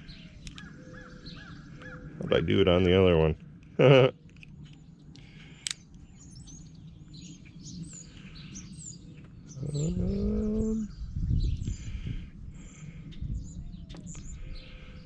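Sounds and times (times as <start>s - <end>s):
small birds chirping: 0.0s - 15.0s
sharp click: 0.4s - 0.7s.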